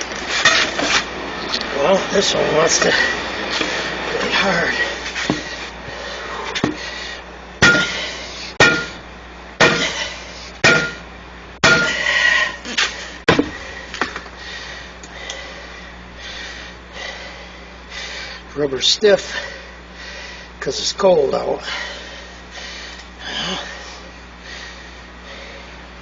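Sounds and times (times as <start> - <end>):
hand tools striking steel rim: 7.6 - 8.0, 8.6 - 9.0, 9.6 - 10.0, 10.6 - 11.0, 11.6 - 12.0.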